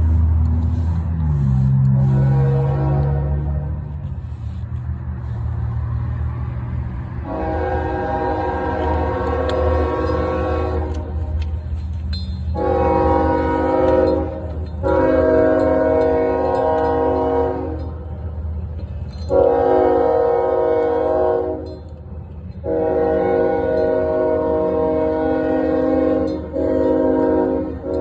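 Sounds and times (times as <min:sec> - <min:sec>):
train horn blasts: 0:00.0 - 0:04.2, 0:07.2 - 0:18.1, 0:19.2 - 0:21.9, 0:22.6 - 0:28.0.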